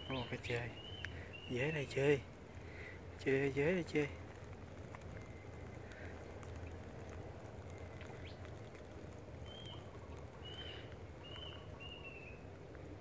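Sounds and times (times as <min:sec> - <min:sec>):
bird whistling: 0:00.0 - 0:01.5, 0:09.4 - 0:12.4
low background hum: 0:00.0 - 0:13.0.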